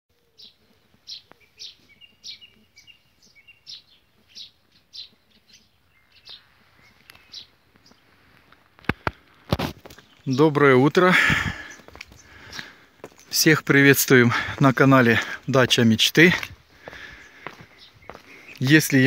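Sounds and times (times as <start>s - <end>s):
small bird chirping: 0.2s - 8.5s, 17.1s - 19.0s.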